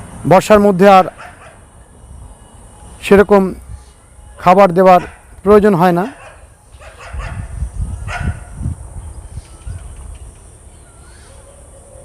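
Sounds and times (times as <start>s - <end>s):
dog barking: 1.2s - 1.6s, 4.9s - 5.3s, 6.0s - 8.5s
low rumbling on microphone: 6.8s - 10.4s.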